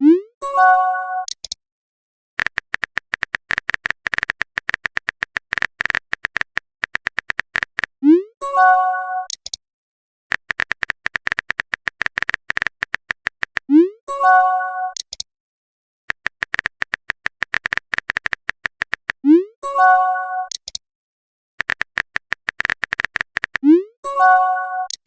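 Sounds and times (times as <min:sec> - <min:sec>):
keyboard typing clicks: 0:01.2 - 0:01.6, 0:02.4 - 0:08.0, 0:09.2 - 0:09.6, 0:10.3 - 0:13.8, 0:14.9 - 0:15.3, 0:16.1 - 0:19.2, 0:20.5 - 0:20.8, 0:21.6 - 0:23.8, 0:24.8 - 0:25.0.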